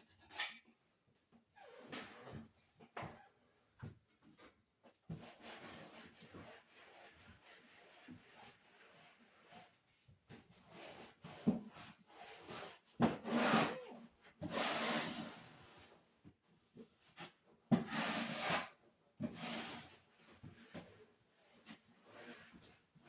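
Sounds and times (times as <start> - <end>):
hand scrubbing a surface: 5.1 - 13.8, 16.8 - 23.0.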